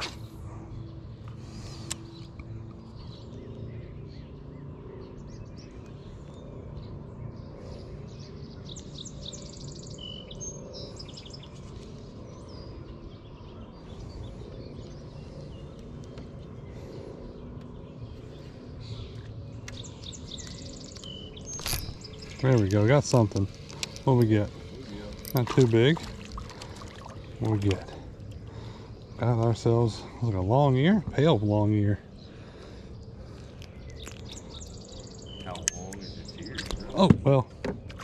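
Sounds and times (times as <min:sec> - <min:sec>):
low background rumble: 0:00.0 - 0:38.0
songbirds chirping: 0:00.0 - 0:38.0.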